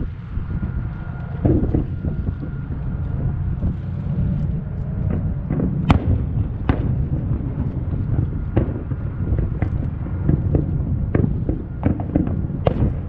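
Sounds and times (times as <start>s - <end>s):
steady low rumble: 0.0s - 13.0s
fireworks bangs: 5.1s - 13.0s.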